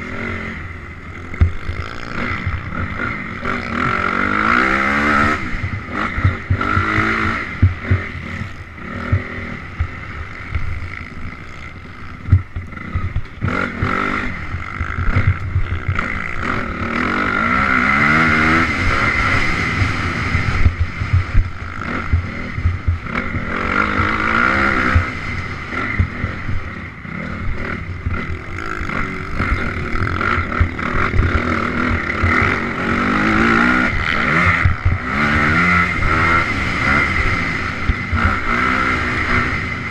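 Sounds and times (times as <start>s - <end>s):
motorcycle engine revving: 0.0s - 39.9s
heavy low thumps: 19.8s - 23.1s.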